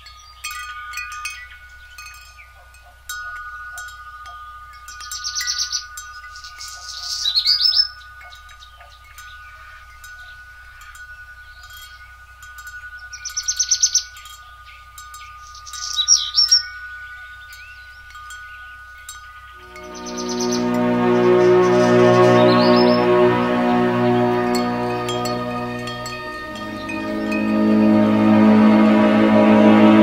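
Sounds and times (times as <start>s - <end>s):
birds trilling: 3.8s - 28.8s
high two-note ringing tone: 19.6s - 30.0s.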